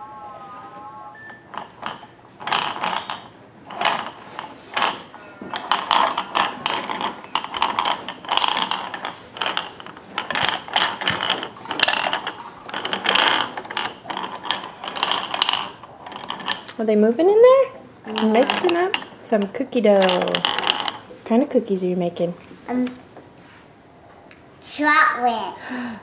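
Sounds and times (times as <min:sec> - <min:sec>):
toy mixer gears clattering: 0:00.0 - 0:17.2, 0:18.0 - 0:21.1.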